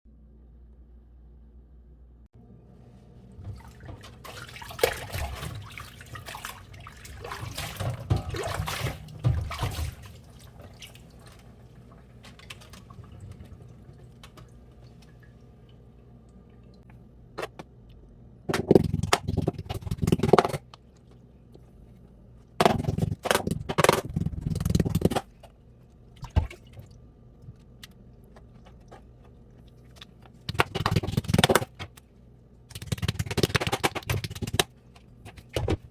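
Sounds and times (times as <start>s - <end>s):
water splashing and dripping: 3.4s - 16.9s.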